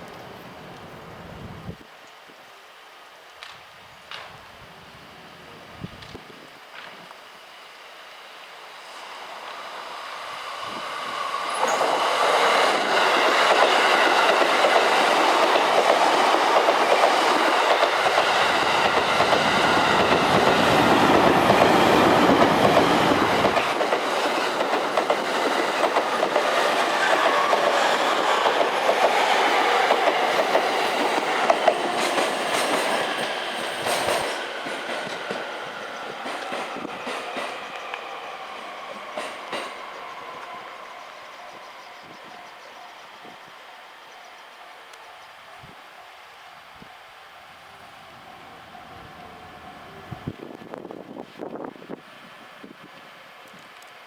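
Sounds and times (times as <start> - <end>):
electric train wheels clattering: 9.2 - 40.6.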